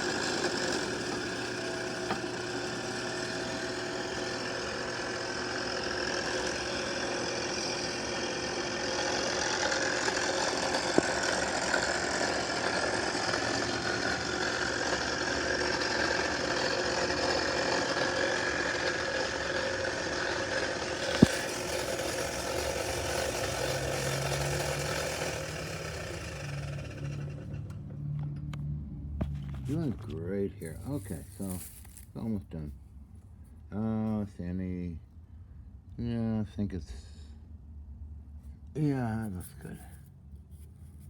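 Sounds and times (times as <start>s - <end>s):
lathe whirring: 0.0s - 27.8s.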